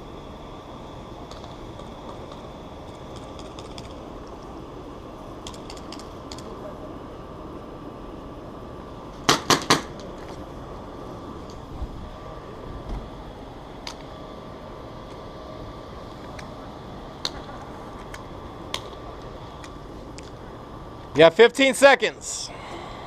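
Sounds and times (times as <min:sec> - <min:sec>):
steady hum: 0:00.0 - 0:23.0
airsoft gun shots: 0:09.3 - 0:09.9.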